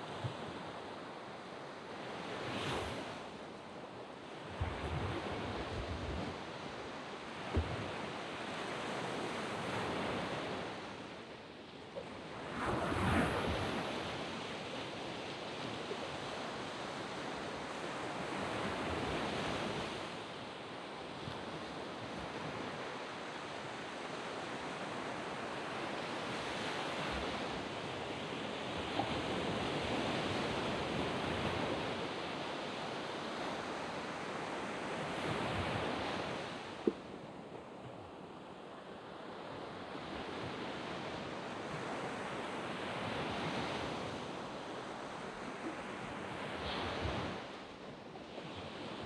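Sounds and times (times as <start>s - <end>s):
waves breaking on beach: 0.0s - 11.2s, 12.1s - 20.3s, 38.6s - 49.0s.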